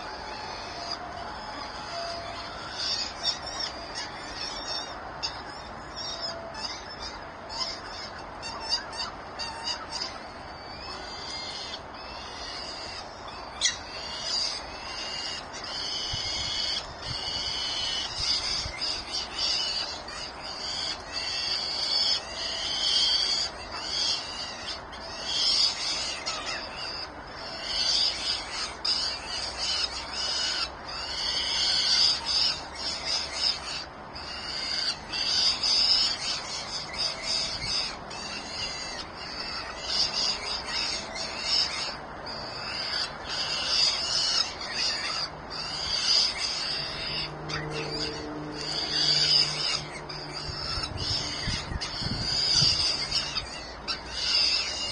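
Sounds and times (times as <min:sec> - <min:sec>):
nestling birds calling: 0:00.0 - 0:54.9.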